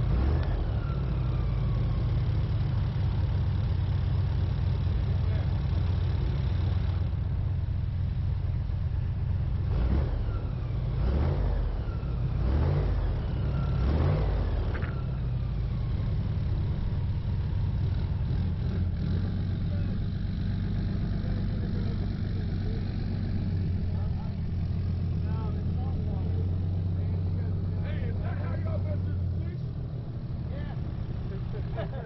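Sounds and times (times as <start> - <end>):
airboat engine revving: 18.6 - 32.0.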